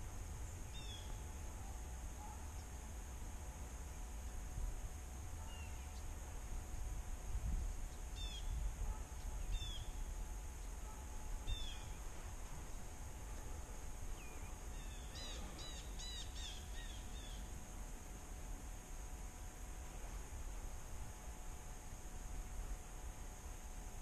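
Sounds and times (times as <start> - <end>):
bird chirping: 0.6 - 1.2, 7.9 - 8.6, 9.2 - 10.0, 11.5 - 12.0, 14.2 - 17.5.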